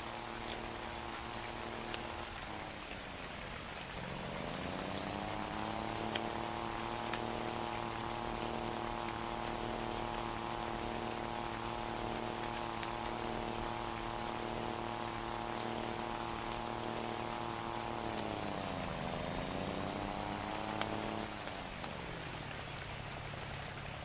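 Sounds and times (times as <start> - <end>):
truck engine revving: 3.9 - 21.4.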